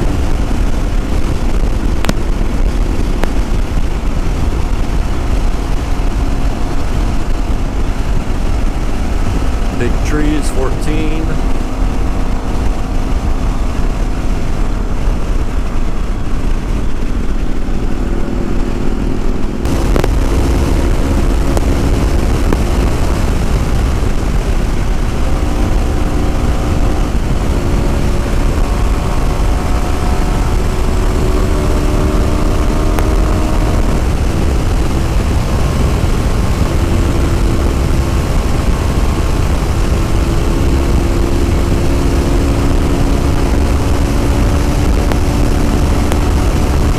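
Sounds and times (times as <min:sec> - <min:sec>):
motorcycle engine cruising: 0:00.0 - 0:46.9
rushing wind noise: 0:00.0 - 0:46.9.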